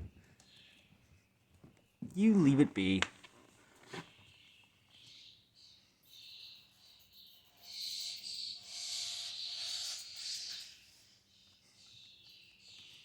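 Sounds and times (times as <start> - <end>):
small bird chirping: 4.0 - 13.0.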